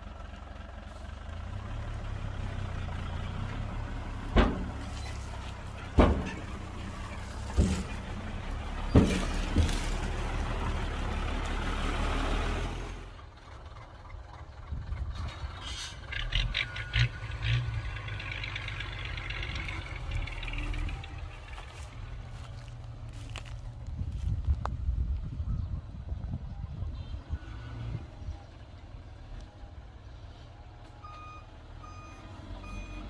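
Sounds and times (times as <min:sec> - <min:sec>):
heavy diesel machinery running: 0:00.0 - 0:24.9
low engine hum: 0:00.0 - 0:33.0
metal clanks: 0:04.3 - 0:10.2.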